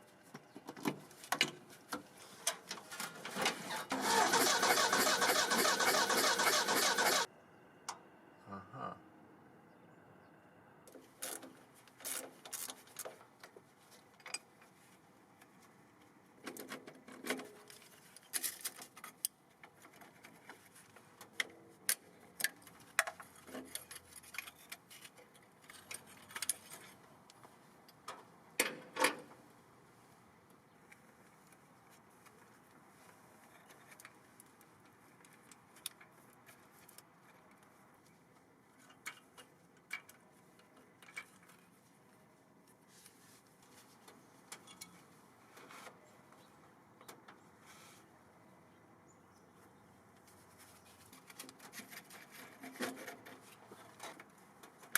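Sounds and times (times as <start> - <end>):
hand tools and metal parts clinking: 22.4 - 27.0.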